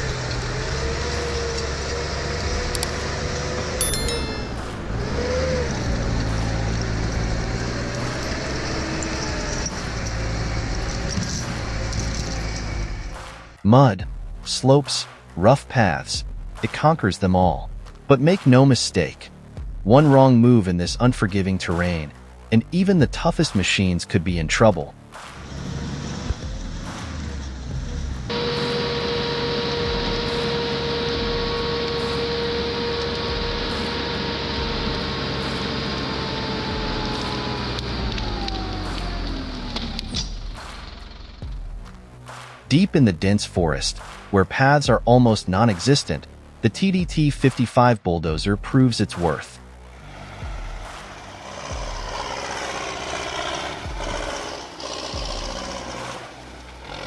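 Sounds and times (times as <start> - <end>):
heavy machine engine running: 0.0 - 13.6, 25.4 - 41.8, 49.8 - 57.0
constant whine: 0.0 - 14.4, 24.4 - 42.5, 49.1 - 57.0.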